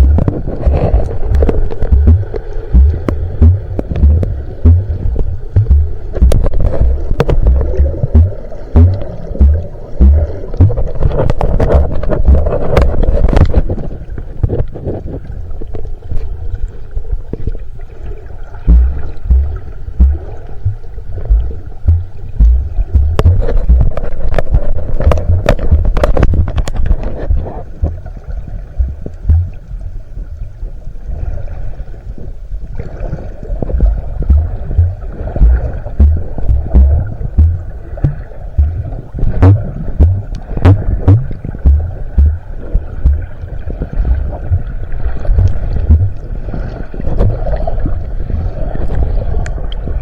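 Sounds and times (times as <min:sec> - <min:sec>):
low thumps: 0:00.0 - 0:13.6, 0:18.7 - 0:26.7, 0:28.8 - 0:29.6, 0:33.7 - 0:46.4, 0:47.2 - 0:47.5
water sloshing and gurgling: 0:00.0 - 0:50.0
sharp clicks: 0:01.3 - 0:10.8.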